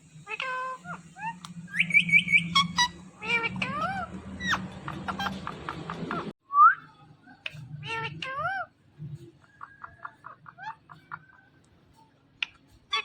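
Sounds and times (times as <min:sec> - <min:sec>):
parakeet calling and chattering: 0:00.2 - 0:06.4, 0:07.5 - 0:08.8, 0:09.4 - 0:11.6, 0:12.4 - 0:13.0.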